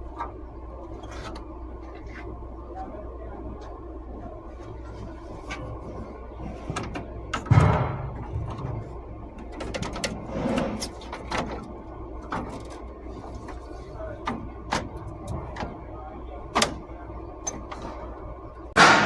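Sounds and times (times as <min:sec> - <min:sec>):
steady low hum: 0:00.0 - 0:19.0
scattered clicks and knocks: 0:06.6 - 0:10.3
heavy thump: 0:07.4 - 0:08.8.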